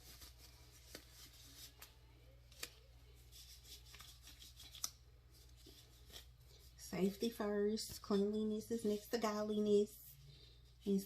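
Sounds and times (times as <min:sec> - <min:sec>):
gloves rustling: 0:00.0 - 0:09.3.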